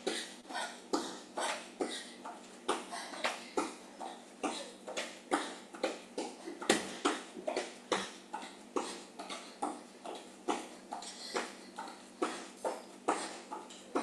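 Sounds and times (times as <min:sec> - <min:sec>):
feet landing on floor: 0:09.6 - 0:11.6, 0:12.2 - 0:14.0.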